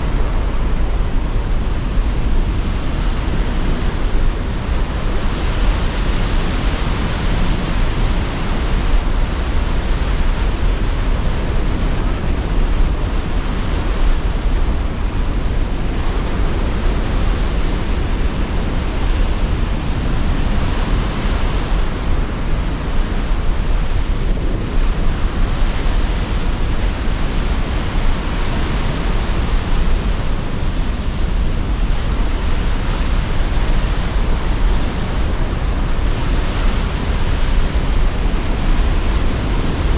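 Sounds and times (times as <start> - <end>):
low rumble of wind: 0.0 - 39.9.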